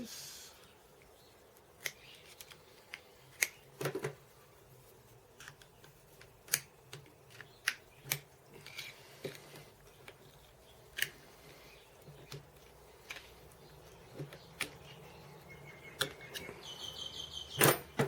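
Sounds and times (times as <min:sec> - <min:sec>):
hand tools clicking and tapping: 0:05.4 - 0:11.2, 0:12.0 - 0:15.0, 0:15.9 - 0:16.6.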